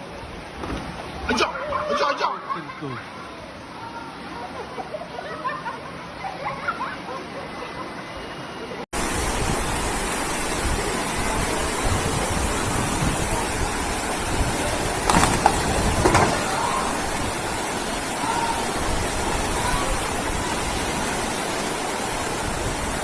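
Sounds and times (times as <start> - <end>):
floodwater rushing: 9.0 - 23.0
water splashes or knocks: 14.3 - 17.2.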